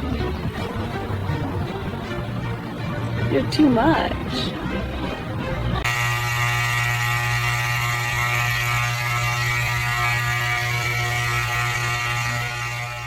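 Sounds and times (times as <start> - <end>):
electric hair clippers buzzing: 5.9 - 13.0.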